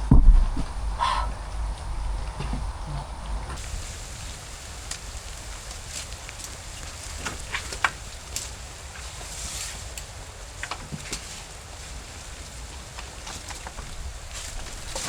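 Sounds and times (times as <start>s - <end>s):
sharp clicks and knocks: 0.0s - 1.0s
wind rumbling on microphone: 0.0s - 9.3s, 11.6s - 15.0s
steady hiss: 0.0s - 15.0s.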